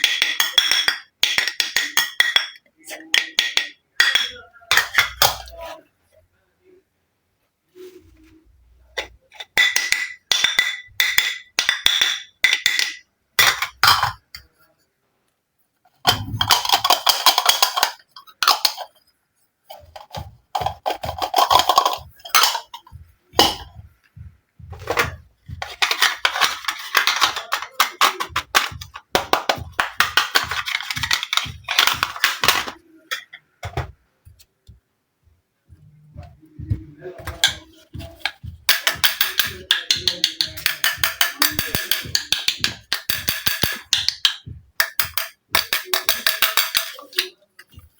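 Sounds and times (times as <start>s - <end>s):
toy dishes clinking: 0.0s - 5.8s, 9.0s - 14.6s, 16.1s - 19.0s, 19.7s - 23.8s, 24.8s - 33.9s, 37.2s - 47.9s.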